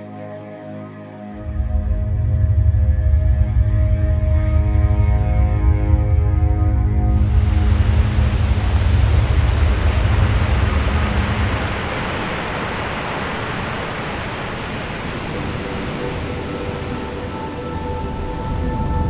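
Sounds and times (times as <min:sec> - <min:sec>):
surf breaking: 0:07.2 - 0:17.9.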